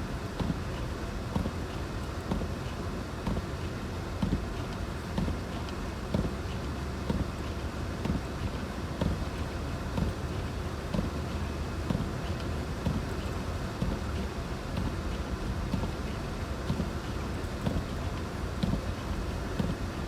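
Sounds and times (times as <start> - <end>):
light thumps: 16.7 - 20.0.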